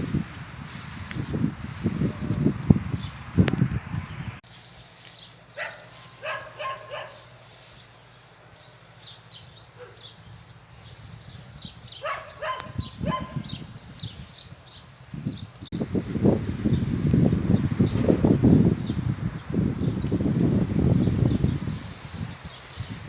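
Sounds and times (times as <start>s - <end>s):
small birds chirping: 2.4s - 23.0s
dog barking: 5.5s - 7.3s, 9.8s - 10.1s, 12.0s - 13.5s.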